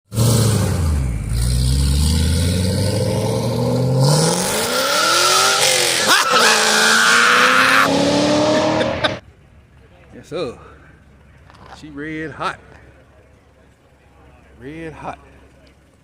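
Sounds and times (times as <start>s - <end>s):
car engine accelerating: 0.1s - 9.4s.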